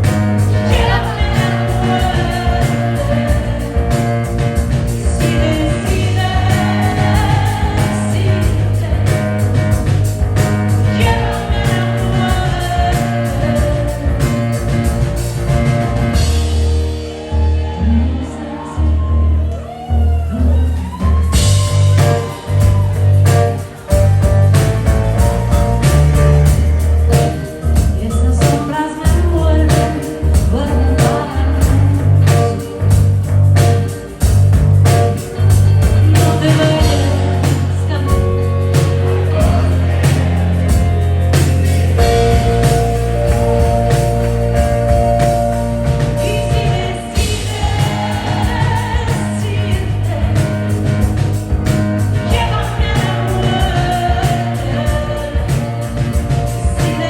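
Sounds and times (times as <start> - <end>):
person singing: 0.0 - 9.9, 10.8 - 15.2, 25.2 - 34.3, 34.9 - 51.2, 52.2 - 57.0
drums: 0.0 - 57.0
heavy bass line: 0.0 - 57.0.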